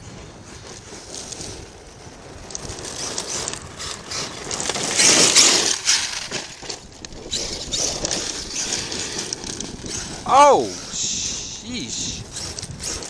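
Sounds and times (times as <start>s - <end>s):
mechanical clicking and rattling: 2.4s - 10.2s, 12.2s - 13.0s.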